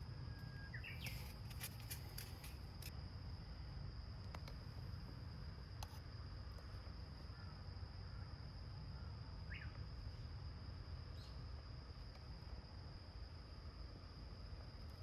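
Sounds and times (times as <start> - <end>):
faint bird chirps: 0.0 - 1.5, 7.1 - 10.4, 11.1 - 11.6
high insect drone: 0.0 - 15.0.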